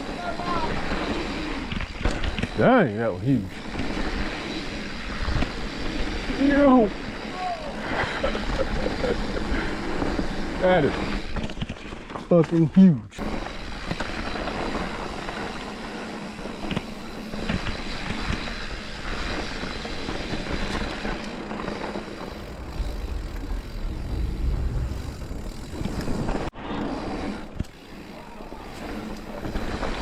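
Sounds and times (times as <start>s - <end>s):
tyres rolling on dirt: 0.0s - 30.0s
wind rushing over microphone: 22.0s - 26.6s.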